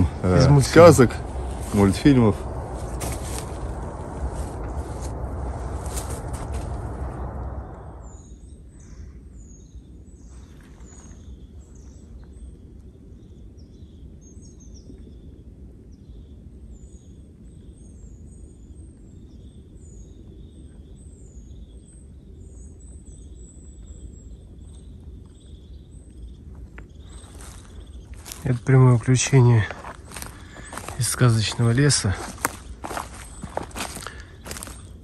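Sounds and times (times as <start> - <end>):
low steady rumble: 0.0 - 10.1, 22.1 - 35.0
small birds chirping: 0.0 - 35.0.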